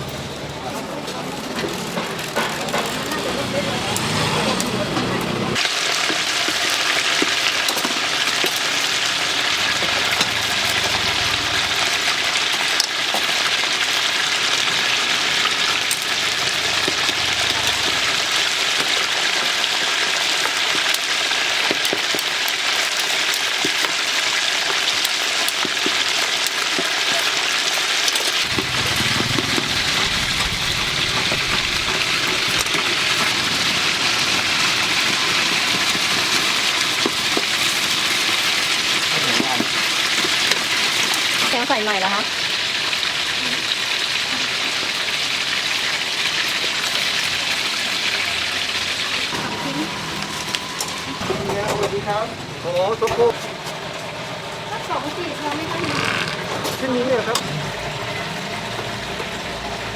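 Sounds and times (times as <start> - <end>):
food deep-frying in hot oil: 0.9 - 59.9
low rumble: 28.4 - 33.6.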